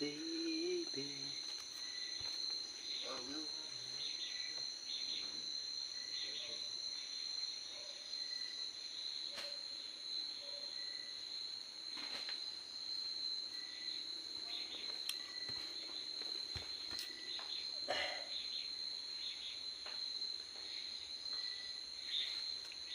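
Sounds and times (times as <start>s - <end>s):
insects chirring: 0.0s - 22.9s.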